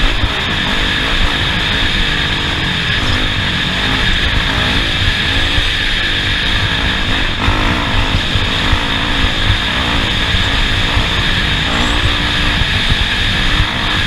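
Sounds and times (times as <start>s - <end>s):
off-road vehicle engine running: 0.0s - 14.0s.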